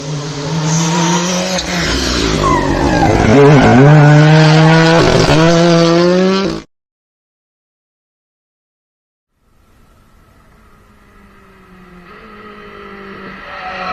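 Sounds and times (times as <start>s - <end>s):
race car engine at high revs: 0.0s - 6.7s, 10.5s - 13.9s.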